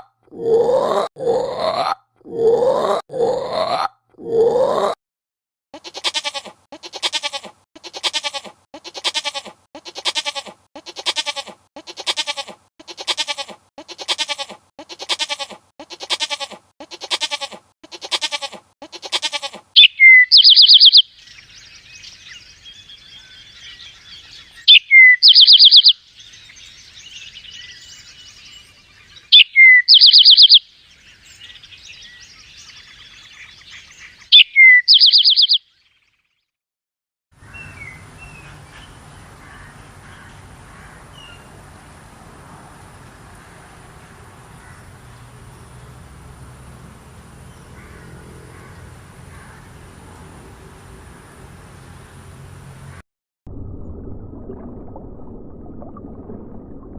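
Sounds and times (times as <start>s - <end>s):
bleating: 5.8s - 19.7s
faint background birdsong: 19.7s - 36.5s, 37.4s - 41.7s, 42.9s - 53.0s
bird call with high trill: 19.8s - 21.1s, 24.4s - 26.0s, 29.3s - 30.6s, 34.3s - 35.7s.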